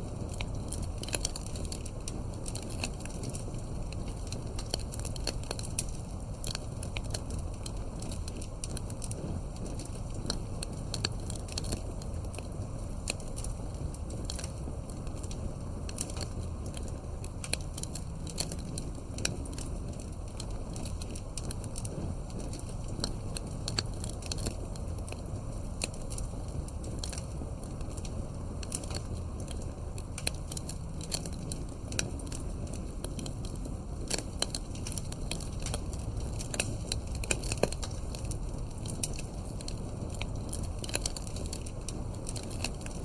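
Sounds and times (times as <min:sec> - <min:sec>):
campfire crackling: 0:00.0 - 0:43.0.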